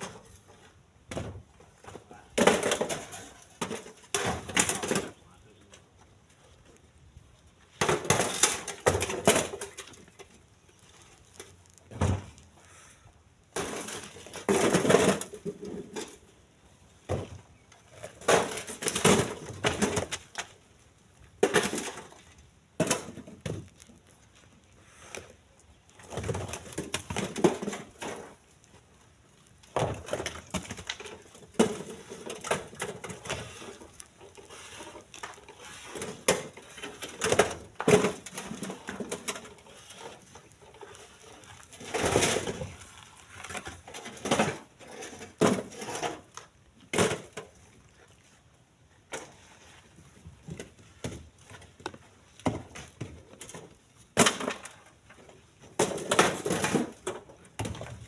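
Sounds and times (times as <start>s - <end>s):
stones clunking into truck bed: 0.0s - 5.2s, 7.7s - 10.4s, 11.3s - 12.4s, 13.5s - 16.3s, 17.0s - 20.6s, 21.4s - 23.9s, 26.0s - 28.5s, 29.7s - 42.8s, 43.4s - 47.6s, 50.2s - 58.0s.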